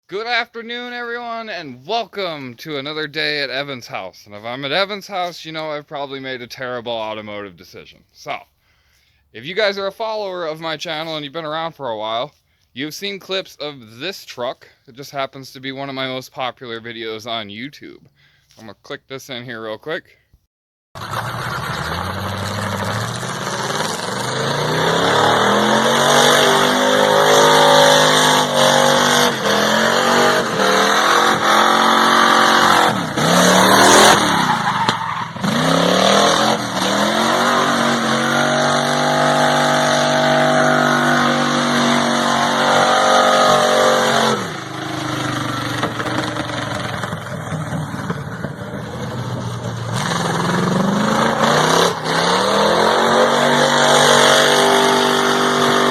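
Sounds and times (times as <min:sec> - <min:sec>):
truck engine accelerating hard: 0:21.0 - 0:55.9.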